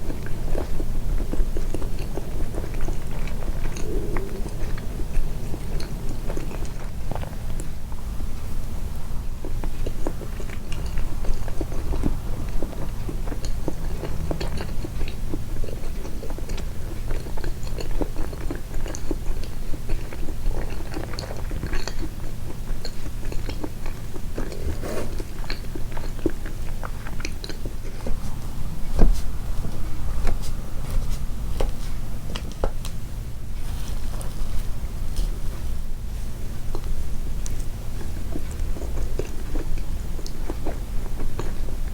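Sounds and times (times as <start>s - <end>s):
swallowing: 0.0s - 7.8s, 9.4s - 32.8s
close chewing mouth sounds: 0.0s - 41.9s
steady low hum: 0.0s - 41.9s.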